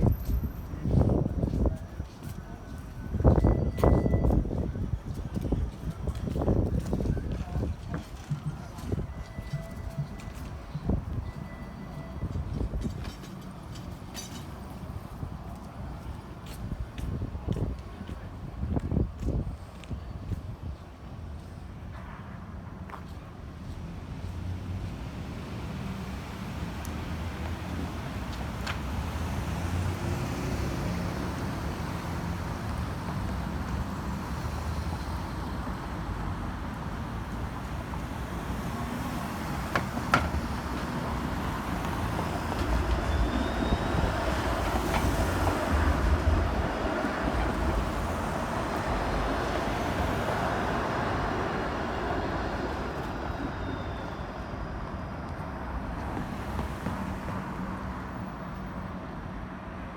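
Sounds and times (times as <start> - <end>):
passing vehicles: 0.0 - 59.9
heavy vehicle rumbling past: 24.4 - 58.8.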